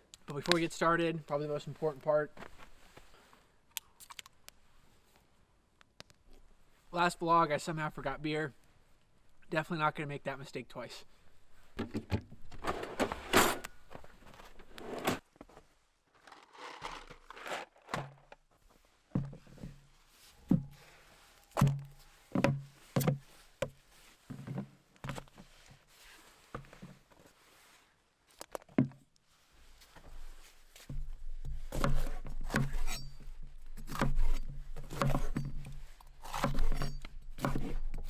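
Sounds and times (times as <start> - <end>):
dull thumps and knocks: 11.8 - 12.6, 21.6 - 25.3.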